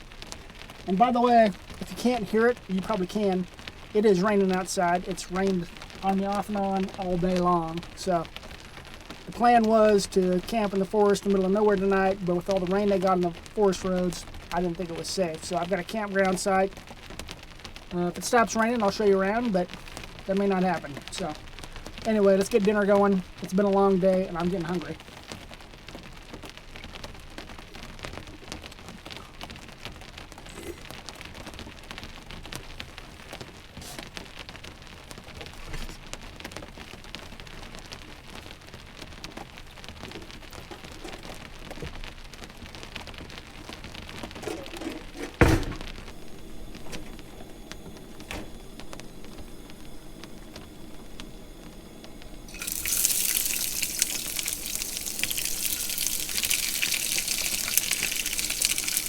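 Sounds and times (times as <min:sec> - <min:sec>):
rain on a vehicle roof: 0:00.0 - 0:59.0
loud rushing hiss: 0:45.4 - 0:55.2.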